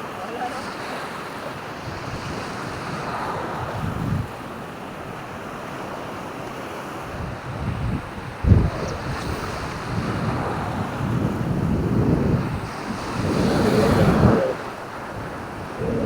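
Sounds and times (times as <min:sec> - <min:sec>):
waves washing onto beach: 0:00.0 - 0:16.0
wind buffeting microphone: 0:01.8 - 0:04.9, 0:07.0 - 0:16.0.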